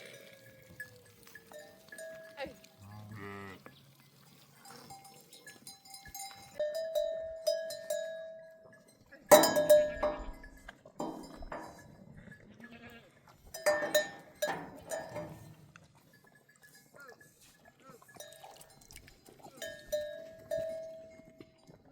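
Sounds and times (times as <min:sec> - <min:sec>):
animal bells clinking: 0:00.0 - 0:21.9
sheep or goats bleating: 0:12.3 - 0:13.4.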